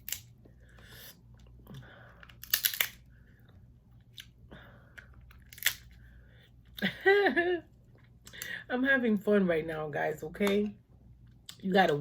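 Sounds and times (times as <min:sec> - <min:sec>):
crab shells cracking: 0:00.0 - 0:00.3, 0:02.2 - 0:03.1, 0:05.0 - 0:05.9.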